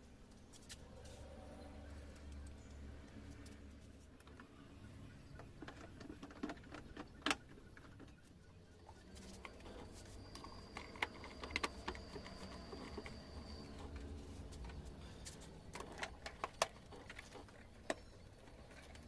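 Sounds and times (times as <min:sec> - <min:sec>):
low steady hum: 0:00.0 - 0:19.0
faint high whine: 0:08.1 - 0:16.4.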